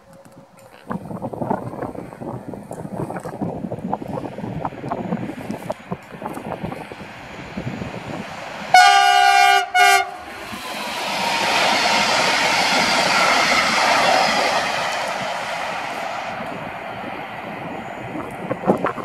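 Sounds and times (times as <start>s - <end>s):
train passing on rails: 0.0s - 19.0s
locomotive horn blasts: 8.7s - 10.3s.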